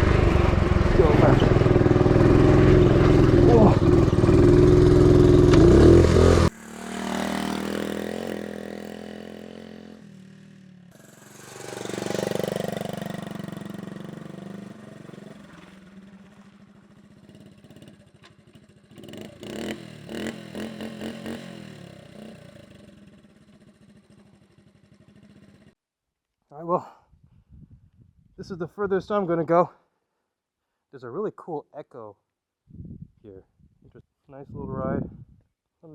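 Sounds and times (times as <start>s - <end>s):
motorcycle engine accelerating: 0.0s - 25.8s.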